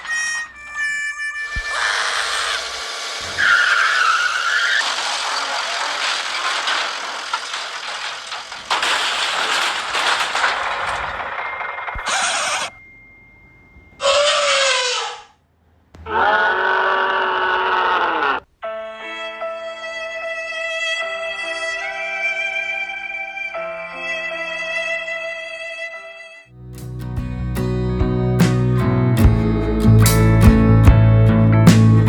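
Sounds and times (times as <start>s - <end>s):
tyre squeal: 0.0s - 8.0s, 11.9s - 12.8s, 14.0s - 15.4s.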